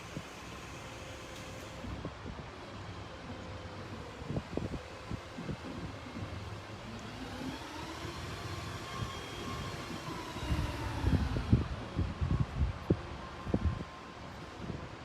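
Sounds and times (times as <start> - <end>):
distant engine droning: 2.8 - 15.0
wind on microphone: 3.8 - 7.4, 8.2 - 15.0.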